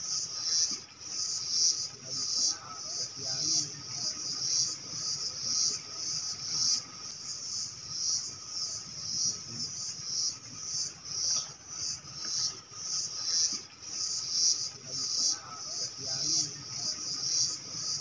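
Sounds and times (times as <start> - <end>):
insect chorus pulsing: 0.0 - 18.0.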